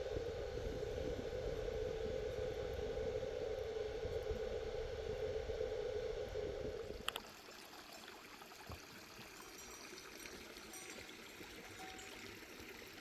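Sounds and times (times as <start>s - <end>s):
click: 7.0s - 7.2s.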